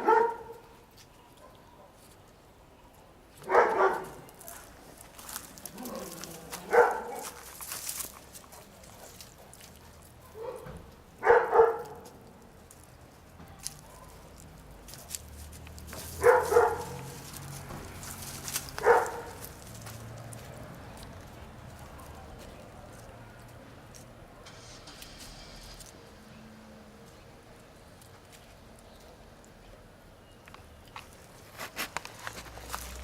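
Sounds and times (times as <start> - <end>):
dog barking: 0.0 - 0.7, 3.4 - 4.3, 5.7 - 7.4, 9.0 - 12.0, 13.8 - 14.3, 16.2 - 17.2, 18.8 - 19.4.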